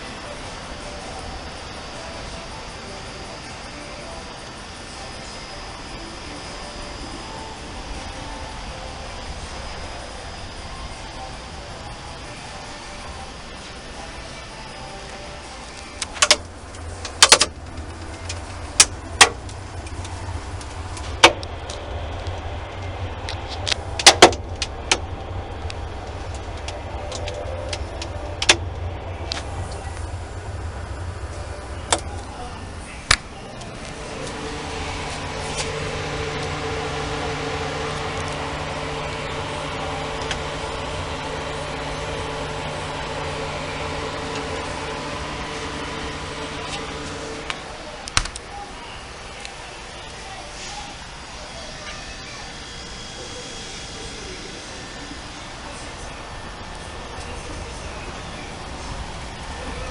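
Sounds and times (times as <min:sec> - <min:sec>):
fan noise: 0:00.0 - 0:59.9
refrigerator hum: 0:00.0 - 0:59.9
sharp clicks and knocks: 0:16.0 - 0:22.4, 0:23.2 - 0:29.8.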